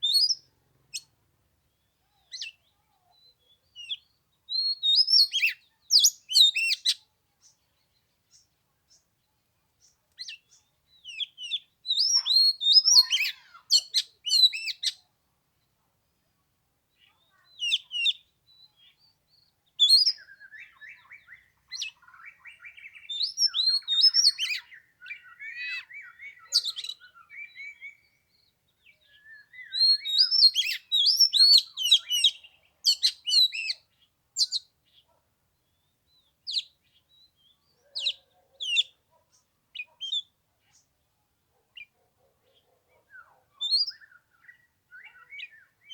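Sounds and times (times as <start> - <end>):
bird singing whistles and chirps: 0.0 - 0.5, 2.3 - 7.0, 10.2 - 15.0, 19.8 - 33.8, 34.4 - 34.7, 43.1 - 45.9.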